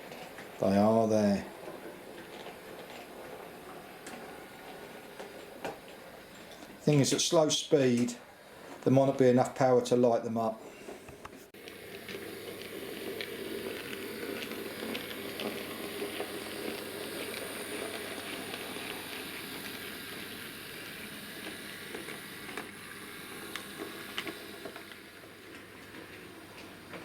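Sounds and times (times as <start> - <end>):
wheels clicking over rail joints: 0.0 - 9.8, 11.6 - 27.0
model train motor hum: 11.6 - 27.0.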